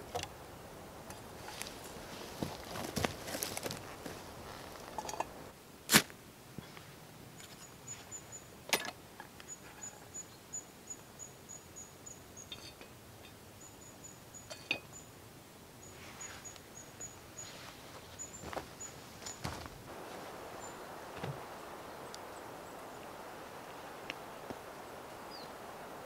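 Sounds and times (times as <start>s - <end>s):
small bird chirping: 15.8s - 19.4s, 20.3s - 26.0s.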